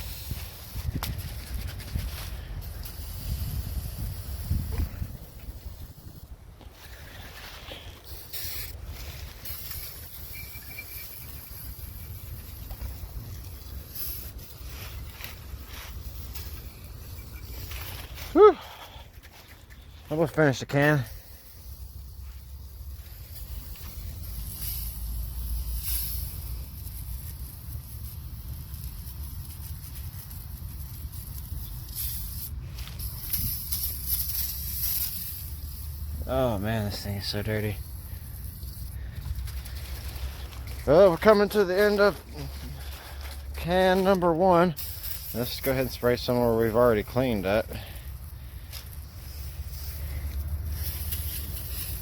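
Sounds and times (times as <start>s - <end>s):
aerosol can spraying: 0.0s - 6.3s, 7.0s - 18.2s, 20.9s - 52.0s
wind rumble on microphone: 0.0s - 7.2s
low steady rumble: 21.0s - 52.0s.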